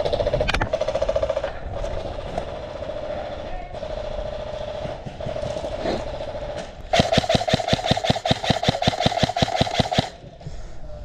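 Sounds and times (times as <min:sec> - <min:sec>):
airsoft rifle firing: 0:03.8 - 0:10.2.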